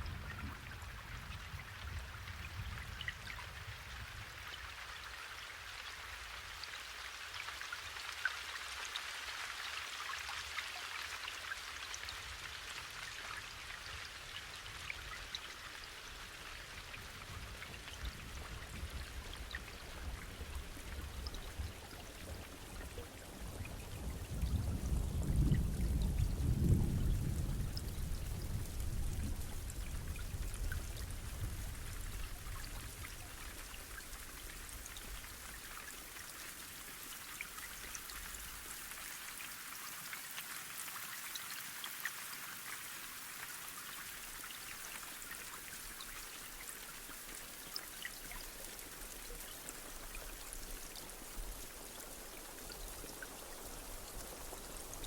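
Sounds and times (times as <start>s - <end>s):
steady rain falling: 0.0s - 55.0s
rain drops ticking: 15.0s - 55.0s.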